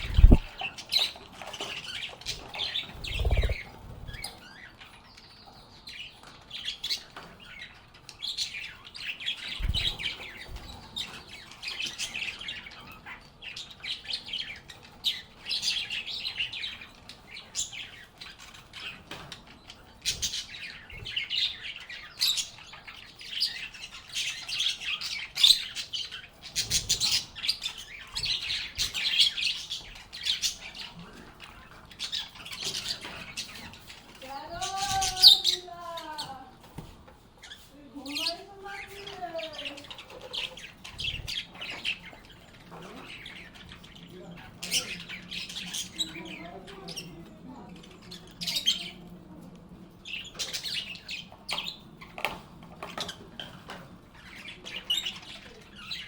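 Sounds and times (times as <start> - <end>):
soft low thumps: 0.0 - 0.5
lovebirds chirping and chattering: 0.0 - 56.0.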